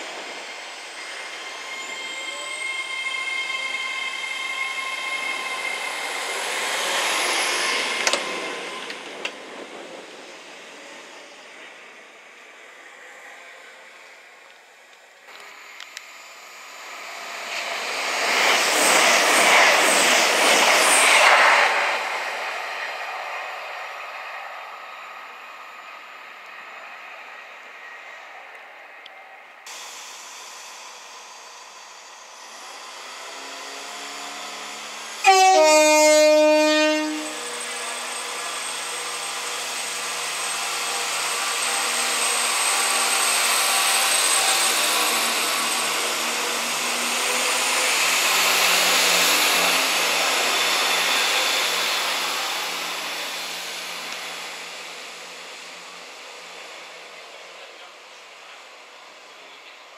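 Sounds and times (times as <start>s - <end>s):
train running with high whine: 0.0s - 59.9s
train horn two-note blast: 35.2s - 37.4s.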